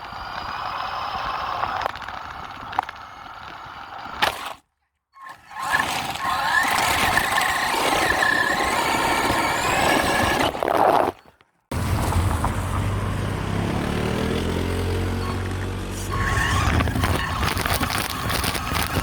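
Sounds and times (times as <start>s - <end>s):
toy truck motor whining: 0.0s - 4.6s, 5.2s - 19.0s.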